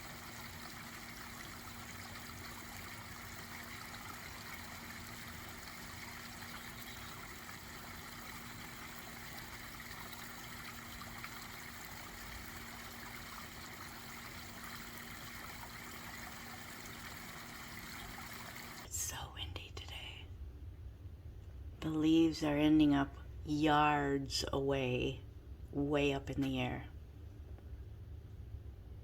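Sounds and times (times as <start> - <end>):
pond waterfall trickling: 0.0 - 18.9.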